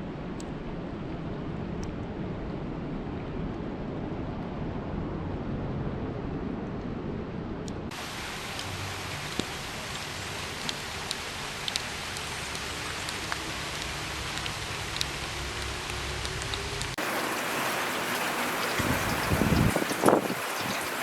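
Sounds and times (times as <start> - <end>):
low rumble: 0.0 - 8.0
steady rain: 7.9 - 21.0.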